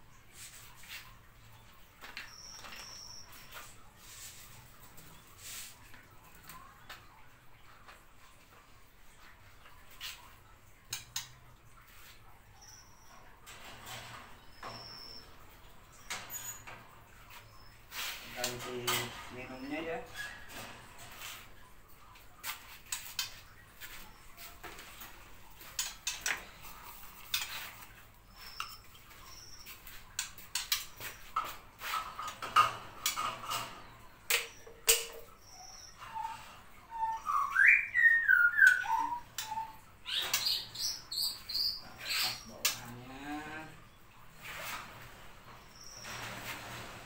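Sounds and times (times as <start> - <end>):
canaries chirping: 2.0 - 3.9, 11.9 - 21.3, 22.9 - 31.6, 32.3 - 43.8
birdcage clicks and clatter: 24.7 - 28.0, 30.1 - 35.3.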